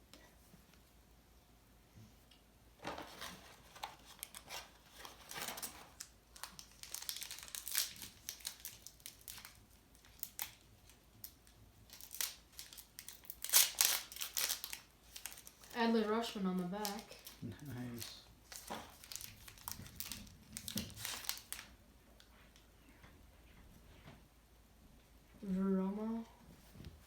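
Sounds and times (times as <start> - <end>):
card pack wrapper crinkling: 2.8 - 15.8, 16.8 - 21.7
cards being handled: 16.8 - 21.6.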